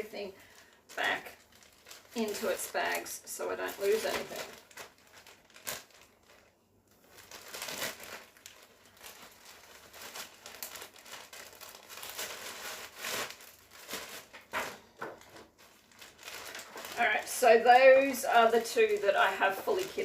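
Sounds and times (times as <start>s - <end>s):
bags crinkling and rustling: 0.0s - 20.0s.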